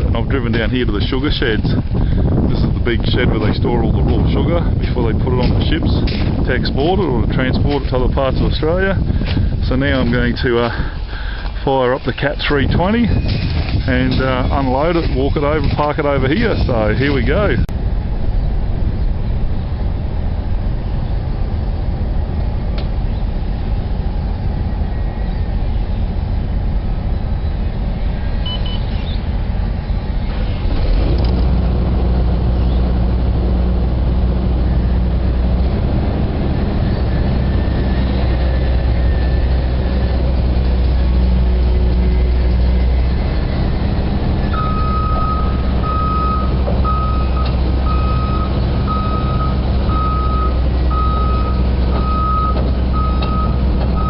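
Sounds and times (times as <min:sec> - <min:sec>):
excavator diesel engine: 0:00.0 - 0:54.0
travel alarm beeping: 0:28.4 - 0:29.0, 0:44.5 - 0:54.0.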